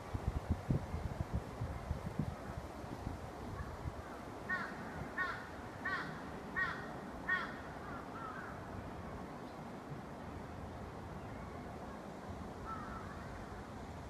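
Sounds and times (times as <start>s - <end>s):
bird calling: 3.6s - 8.7s, 12.6s - 13.6s.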